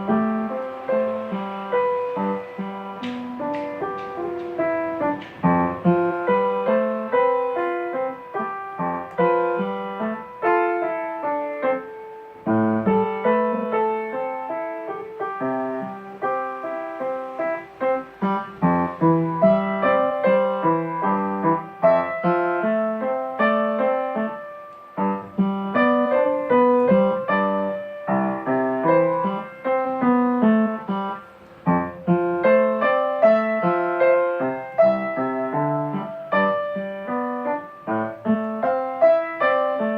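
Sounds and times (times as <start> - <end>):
solo piano music: 0.0 - 39.9.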